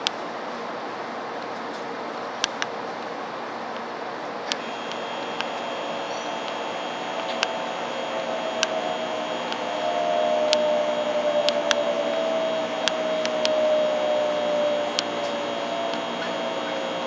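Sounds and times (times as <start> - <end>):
sharp clicks: 4.5 - 13.7, 14.3 - 17.0
falling whine: 4.5 - 17.0
train hum and rushing: 4.6 - 17.0.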